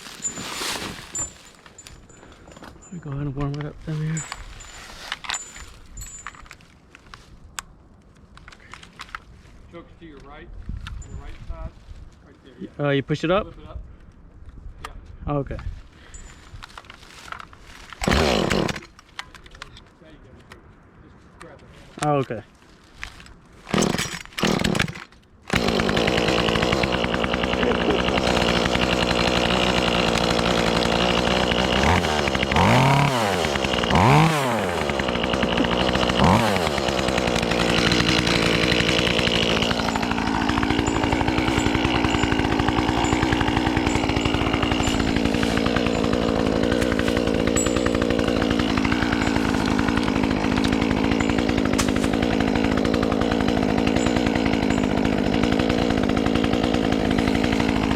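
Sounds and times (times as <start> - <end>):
chainsaw pull-start: 0.0 - 2.8, 3.9 - 6.5, 17.4 - 19.0, 23.6 - 57.9
chainsaw idling and revving: 18.0 - 18.9, 23.7 - 57.9.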